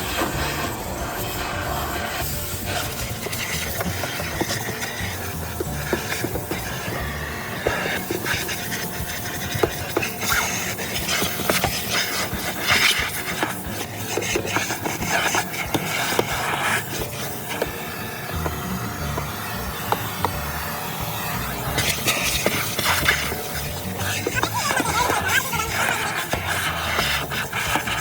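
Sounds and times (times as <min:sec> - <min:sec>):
rubbing and scraping: 0:01.3 - 0:07.0, 0:21.7 - 0:28.0.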